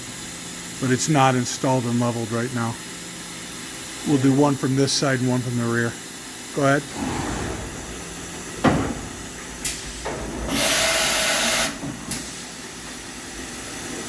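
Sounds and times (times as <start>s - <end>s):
compressed air hissing: 6.3s - 13.6s
machine tool changer clunk: 6.8s - 12.4s.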